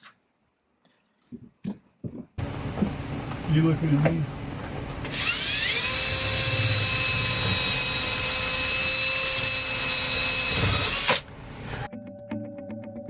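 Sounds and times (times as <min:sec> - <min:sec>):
power drill whining: 0:05.0 - 0:11.9
quiet music: 0:11.9 - 0:13.0.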